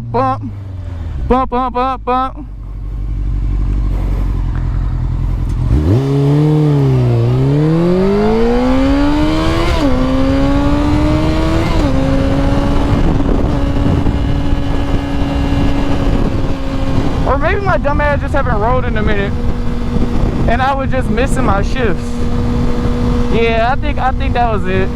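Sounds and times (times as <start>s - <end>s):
man talking: 0.0s - 0.6s, 1.3s - 2.5s, 17.2s - 19.4s, 20.4s - 22.3s, 23.3s - 24.9s
motorcycle engine revving: 2.5s - 24.9s
wind rush: 3.9s - 24.9s.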